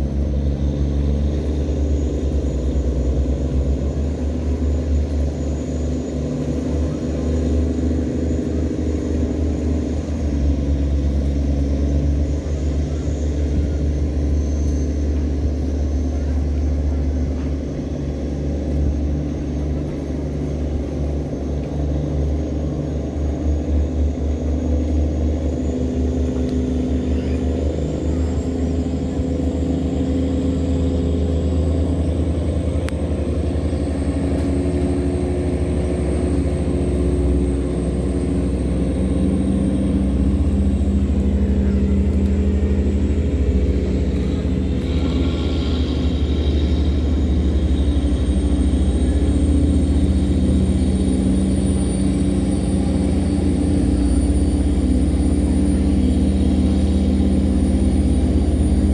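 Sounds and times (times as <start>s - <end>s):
boat engine deep drone: 0.0s - 58.9s
thin high whine: 39.2s - 58.9s.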